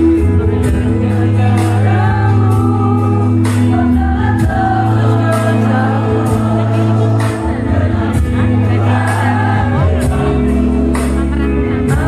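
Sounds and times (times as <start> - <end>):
low instrumental notes: 0.0 - 12.0
women's choir singing: 1.4 - 10.6.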